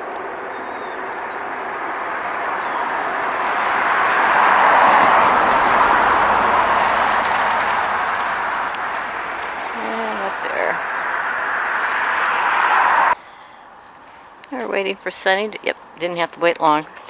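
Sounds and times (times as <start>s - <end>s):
passing vehicle rushing: 0.0s - 13.2s.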